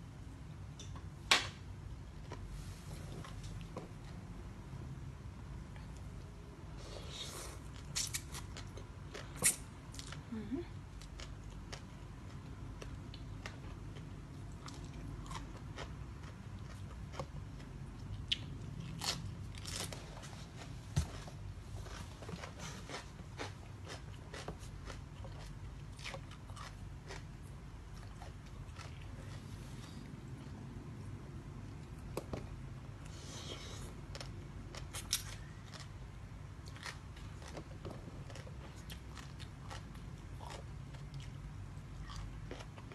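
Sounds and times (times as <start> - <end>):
crunchy chewing: 11.0 - 30.8, 33.1 - 36.0, 36.6 - 42.9.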